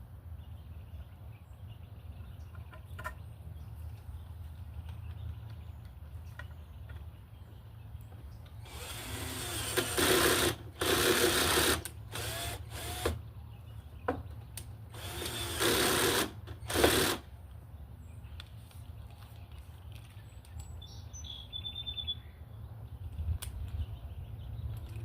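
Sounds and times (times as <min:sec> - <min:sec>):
cordless drill drilling into wood: 0:08.6 - 0:13.2, 0:14.9 - 0:17.3.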